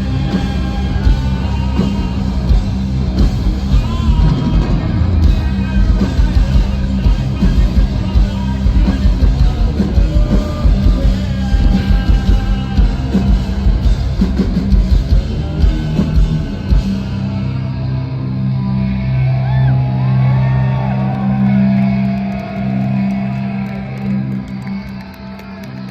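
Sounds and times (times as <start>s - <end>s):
fast pounding drums: 0.0s - 17.2s
bass low notes: 0.0s - 25.9s
distorted guitars: 0.0s - 25.9s.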